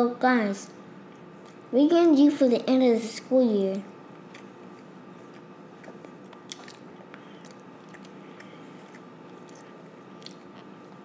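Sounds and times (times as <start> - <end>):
steady low hum: 0.0 - 11.0
wet mouth clicks chewing: 4.2 - 11.0.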